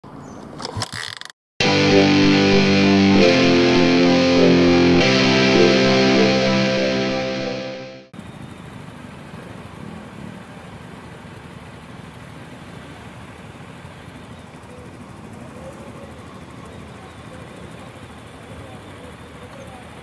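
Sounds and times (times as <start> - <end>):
distorted electric guitar music: 1.6 - 8.1.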